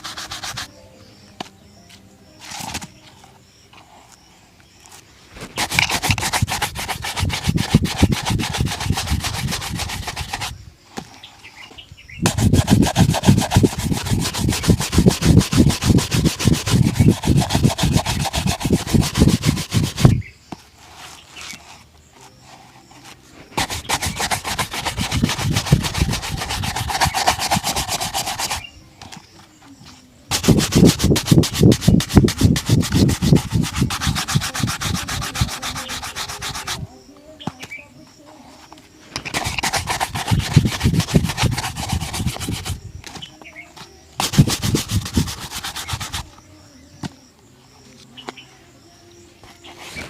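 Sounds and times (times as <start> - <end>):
shoe being buffed: 0.0 - 0.8, 5.4 - 11.1, 12.2 - 29.3, 30.3 - 37.8, 39.2 - 46.4, 49.4 - 50.0.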